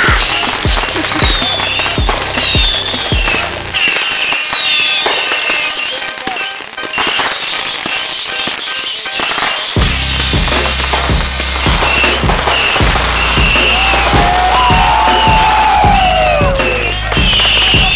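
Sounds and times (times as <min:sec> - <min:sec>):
music with bass beat: 0:00.0 - 0:03.8, 0:09.8 - 0:17.9
fireworks banging and crackling: 0:00.0 - 0:17.9.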